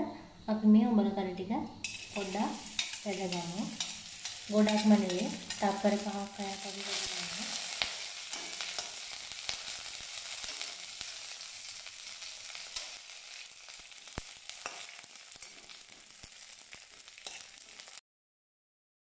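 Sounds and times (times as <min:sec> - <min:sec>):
metal spoon scraping a wok: 0:01.8 - 0:11.8, 0:17.2 - 0:17.8
fish flakes sizzling in oil: 0:01.8 - 0:18.0.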